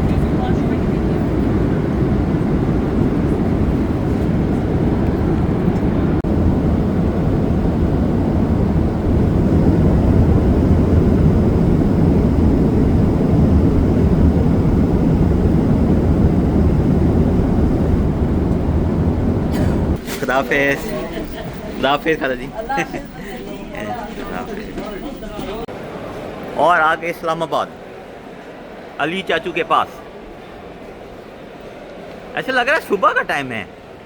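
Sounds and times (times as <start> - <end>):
jet engine cabin rumble: 0.0 - 25.7.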